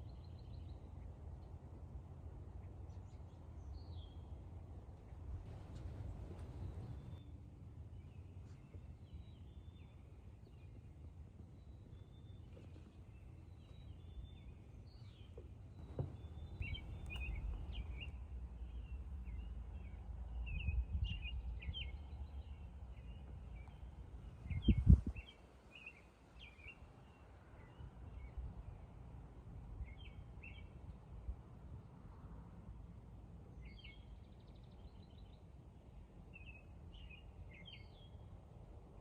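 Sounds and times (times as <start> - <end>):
small birds chirping: 11.5 - 28.9
thump: 15.8 - 17.2
low rumble: 15.8 - 22.4.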